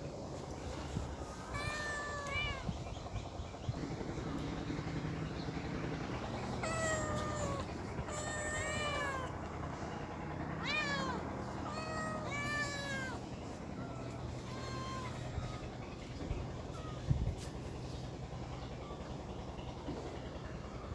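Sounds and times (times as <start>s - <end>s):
cats meowing: 1.0s - 2.9s, 6.4s - 9.7s, 10.5s - 17.5s.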